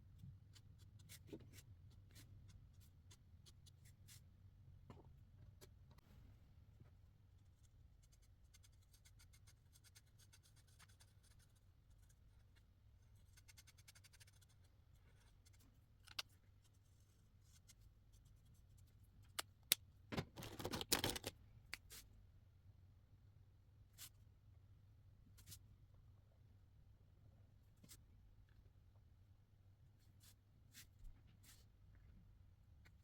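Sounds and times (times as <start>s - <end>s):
marker scratching on paper: 8.0s - 12.2s.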